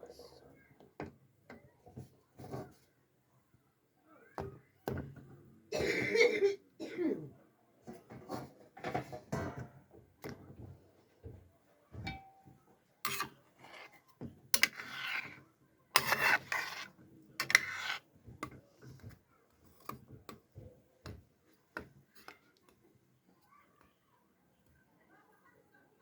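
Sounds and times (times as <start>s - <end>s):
utensils and cookware clinking: 12.0s - 15.4s, 16.0s - 19.0s.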